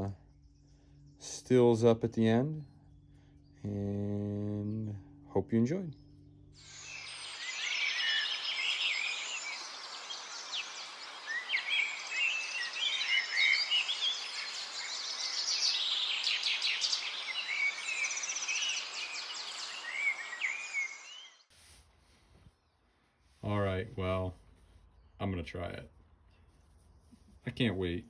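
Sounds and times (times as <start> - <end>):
songbirds chirping and singing: 6.0 - 21.4
steady outdoor hiss: 6.5 - 28.0.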